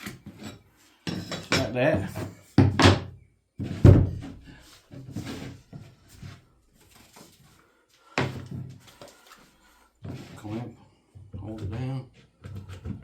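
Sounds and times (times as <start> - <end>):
wooden pieces knocking on workbench: 1.2 - 3.1.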